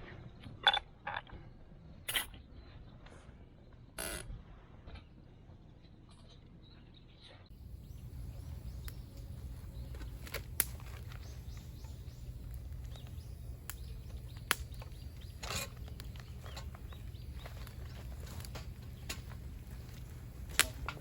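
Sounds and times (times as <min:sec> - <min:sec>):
faint bird chirps: 0:06.6 - 0:21.0
low outdoor rumble: 0:07.5 - 0:21.0
sharp snaps: 0:07.6 - 0:21.0.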